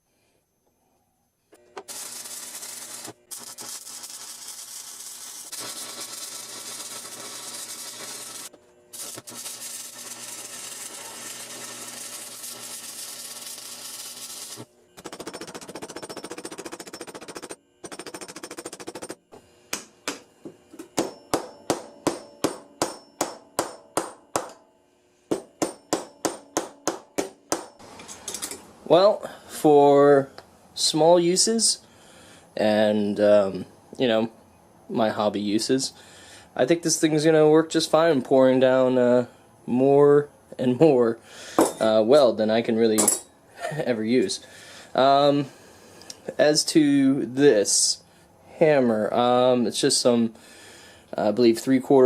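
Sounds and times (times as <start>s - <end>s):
welding arc crackling: 1.8s - 17.4s
chip hammer striking metal: 15.0s - 24.7s, 25.3s - 28.6s, 41.6s - 41.9s.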